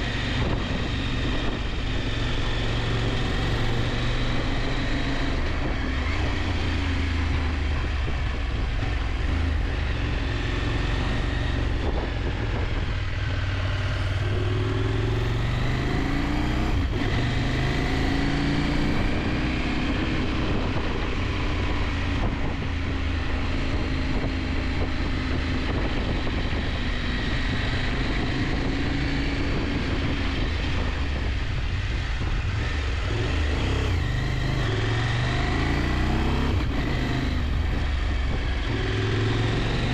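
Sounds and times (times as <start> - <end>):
motorcycle engine revving: 0.0 - 39.9
wind noise: 0.0 - 39.9.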